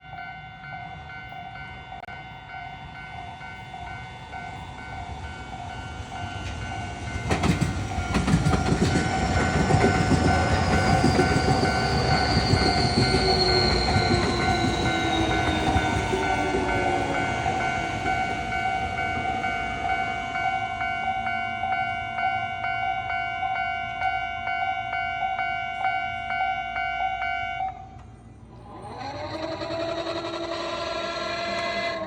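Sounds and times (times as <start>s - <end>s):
level crossing alarm ringing: 0.0s - 27.9s
train motor whine: 0.9s - 32.0s
train wheels clacking over rail joints: 6.4s - 19.5s.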